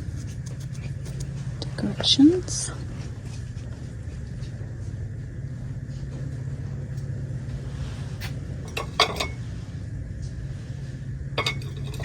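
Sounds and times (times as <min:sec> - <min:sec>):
housewares clinking together: 0:08.7 - 0:09.4, 0:11.4 - 0:12.0.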